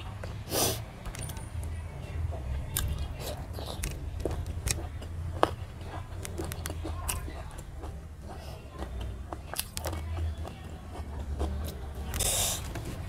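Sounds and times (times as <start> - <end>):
steady low hum: 0.0 - 13.0
wet chewing mouth smacks: 2.7 - 8.5, 9.5 - 10.1.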